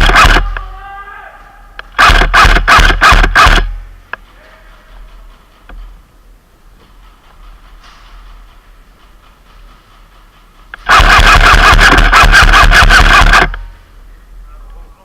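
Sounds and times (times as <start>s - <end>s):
airsoft gun full-auto burst: 0.0s - 0.6s, 1.9s - 4.0s, 10.8s - 13.7s.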